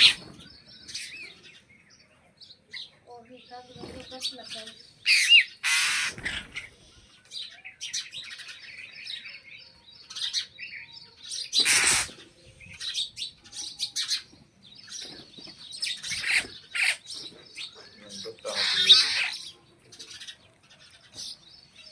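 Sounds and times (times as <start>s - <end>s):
harsh bird call: 0.0s - 0.3s, 5.0s - 6.8s, 11.3s - 12.2s, 18.0s - 19.5s
birds chirping: 0.0s - 21.9s.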